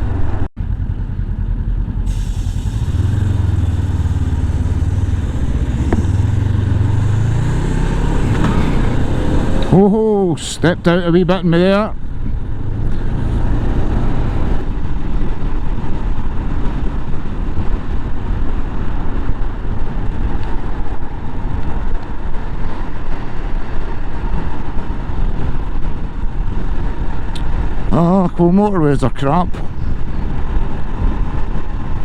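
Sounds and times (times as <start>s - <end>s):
motorcycle running: 0.0s - 10.2s, 11.8s - 28.7s
wind buffeting helmet microphone: 0.0s - 32.0s.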